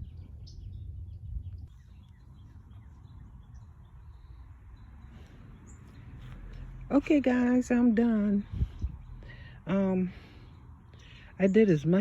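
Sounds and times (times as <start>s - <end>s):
wind rumble on microphone: 0.0s - 9.4s.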